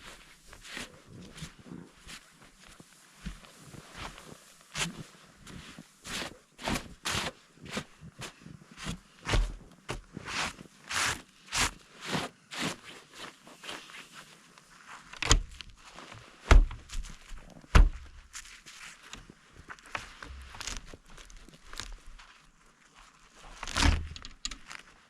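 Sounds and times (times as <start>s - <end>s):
footsteps crunching in snow: 0.0s - 24.0s
heavy thumps: 17.7s - 18.2s.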